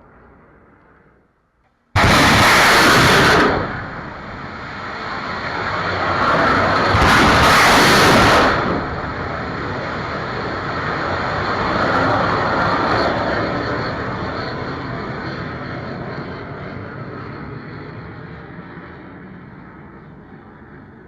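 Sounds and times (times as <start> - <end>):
missile launch blast: 2.0 - 5.6, 6.3 - 9.4
missile roar: 2.0 - 12.8.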